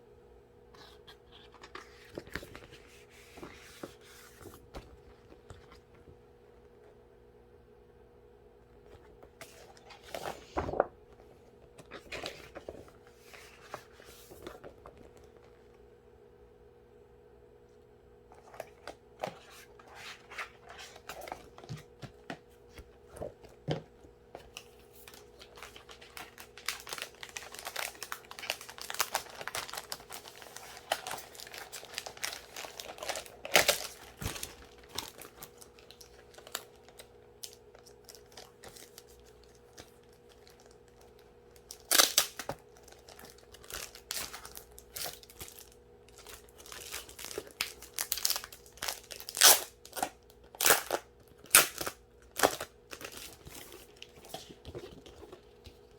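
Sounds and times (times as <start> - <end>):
packaging crinkling and tearing: 24.5 - 55.9.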